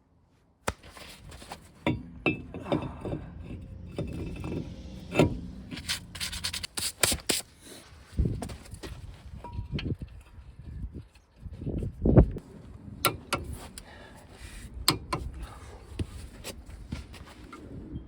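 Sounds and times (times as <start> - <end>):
steady low hum: 0.7 - 7.6
metal tools clanking and scraping: 1.2 - 6.7.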